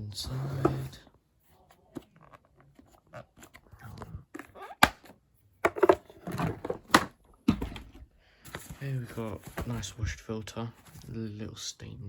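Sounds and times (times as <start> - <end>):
rustling and scraping: 5.8 - 11.3.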